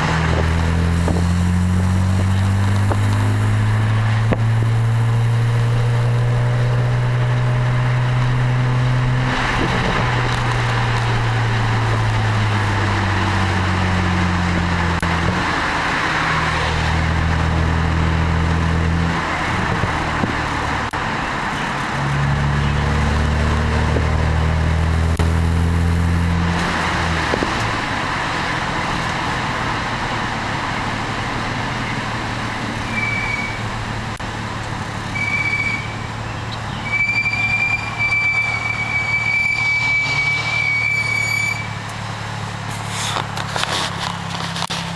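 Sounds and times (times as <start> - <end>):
car engine droning: 0.0 - 44.9
high thin squeal: 32.8 - 33.7, 36.8 - 41.8.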